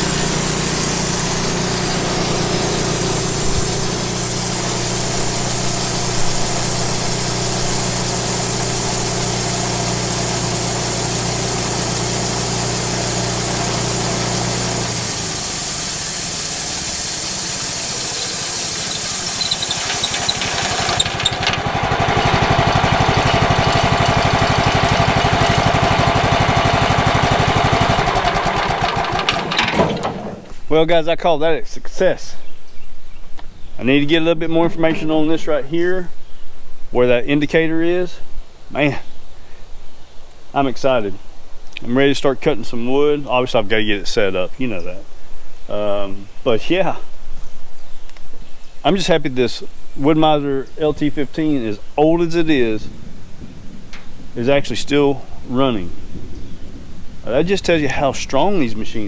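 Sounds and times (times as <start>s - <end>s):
sawmill engine running: 0.0s - 30.6s.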